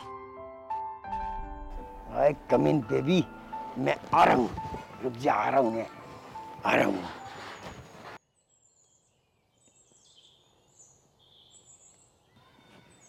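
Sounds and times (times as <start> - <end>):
faint bird chirps: 7.3 - 13.0.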